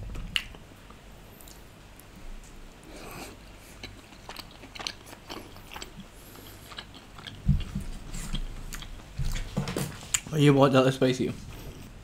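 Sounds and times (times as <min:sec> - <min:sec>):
chewing food: 0:00.0 - 0:10.3
wet mouth clicks and smacks: 0:00.2 - 0:00.6.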